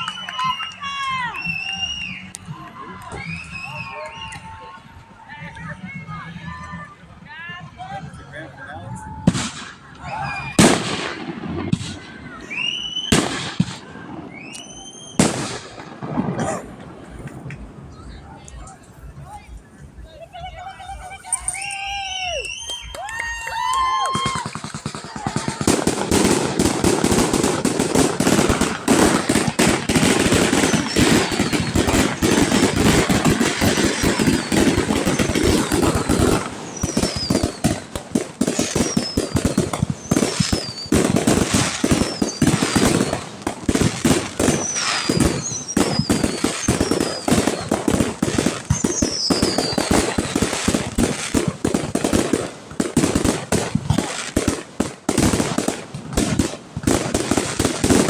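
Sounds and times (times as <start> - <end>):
high whistles falling in pitch: 0.0 - 2.5, 12.5 - 13.2, 14.3 - 15.3, 20.9 - 24.6, 29.6 - 37.8, 38.4 - 43.2
fireworks bangs and crackling: 0.0 - 8.4, 9.0 - 58.0.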